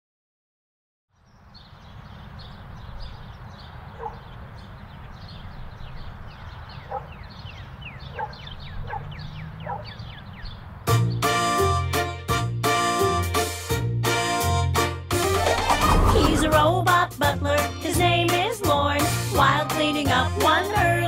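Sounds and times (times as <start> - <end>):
birds chirping: 1.1 - 11.6
low loud bird calls: 1.2 - 10.7.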